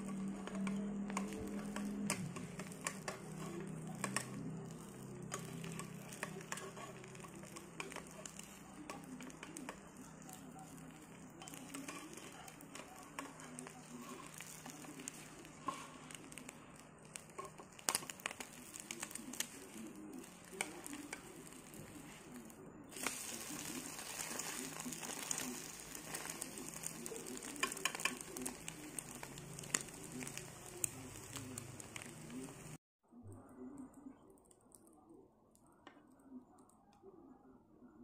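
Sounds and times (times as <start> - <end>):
bread sizzling in oil: 0.0 - 22.3, 22.9 - 32.8.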